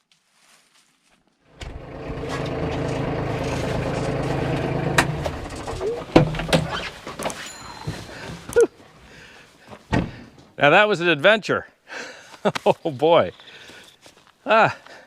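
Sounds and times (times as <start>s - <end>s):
tractor diesel engine running: 1.5s - 8.4s.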